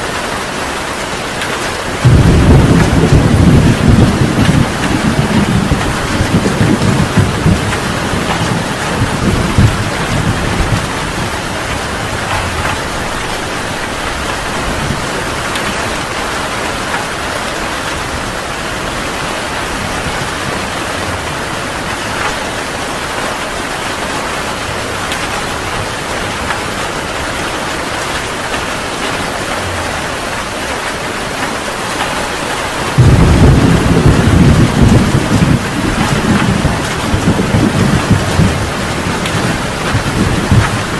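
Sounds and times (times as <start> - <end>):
heavy rain falling: 0.0 - 40.9
thunder rumbling: 1.8 - 40.9
loud thunderclap: 2.0 - 16.2, 32.8 - 40.9.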